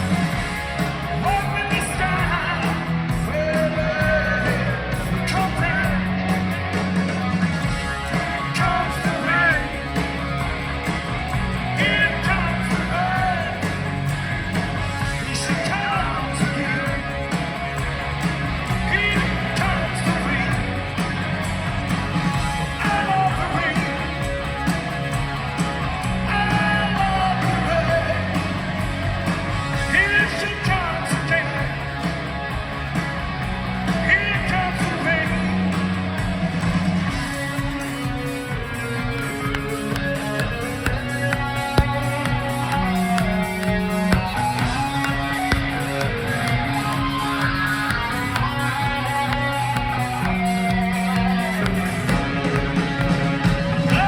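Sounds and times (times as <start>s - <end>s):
rock band playing: 0.0s - 54.0s
electric guitar bending lead notes: 37.2s - 53.9s.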